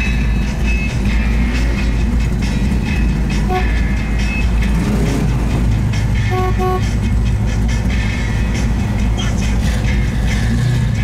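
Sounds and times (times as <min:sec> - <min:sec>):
car engines idling: 0:00.0 - 0:11.0
car horn toots: 0:03.4 - 0:04.0, 0:06.2 - 0:07.0.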